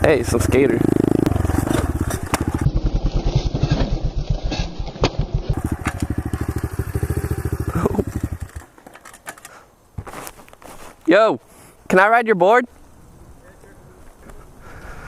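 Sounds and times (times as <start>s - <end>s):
motorcycle engine idling: 0.0s - 4.4s, 5.2s - 8.7s.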